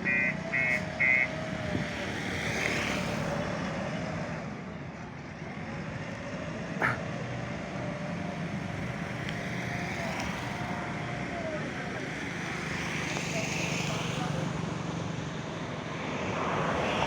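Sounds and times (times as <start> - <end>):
diesel engine running: 0.0 - 2.3.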